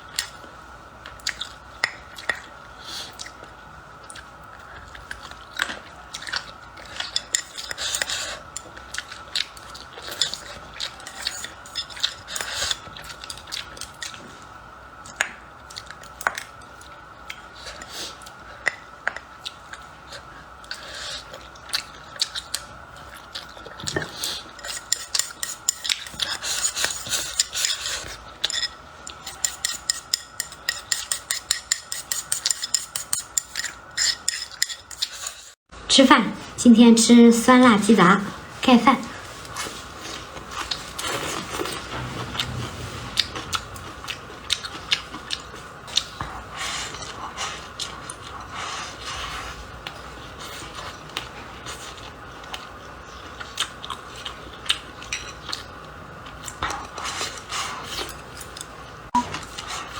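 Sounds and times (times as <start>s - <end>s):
utensils clinking against a bowl: 10.0s - 13.4s, 23.8s - 35.5s
person chewing and biting: 39.5s - 48.5s.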